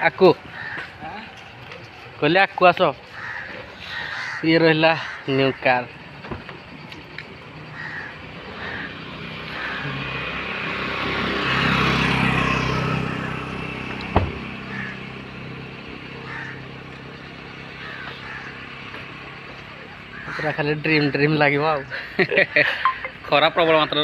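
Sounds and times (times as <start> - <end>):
motor vehicle passing by: 5.8 - 24.0.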